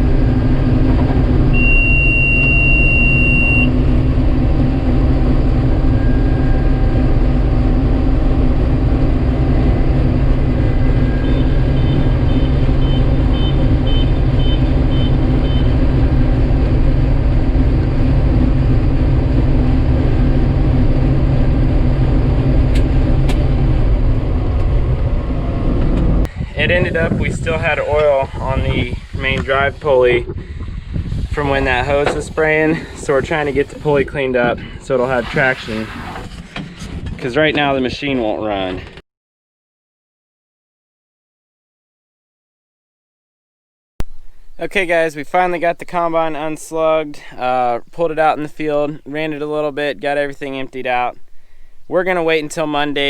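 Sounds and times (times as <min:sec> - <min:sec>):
combine harvester running: 0:00.0 - 0:26.9
short beeps: 0:01.5 - 0:03.8
steady beep: 0:01.5 - 0:03.9.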